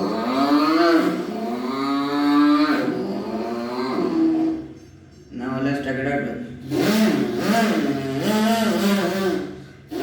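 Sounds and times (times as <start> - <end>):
man imitating motorcycle engine: 0.0 - 4.8, 6.6 - 10.0.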